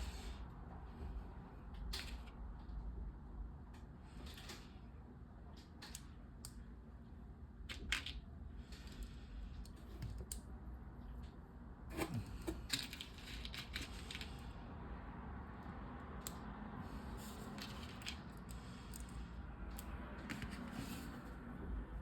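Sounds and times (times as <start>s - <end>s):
plastic bricks clicking and rattling: 12.5s - 14.4s.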